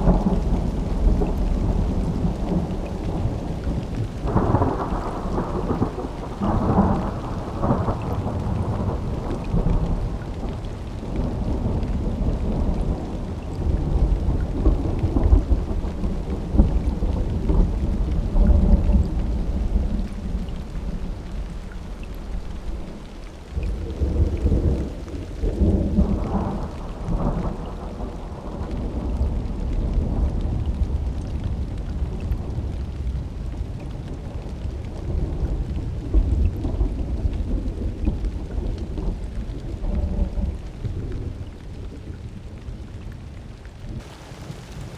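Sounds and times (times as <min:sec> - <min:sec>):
thunder rumbling: 0:00.0 - 0:43.1
steady rain: 0:00.0 - 0:44.9.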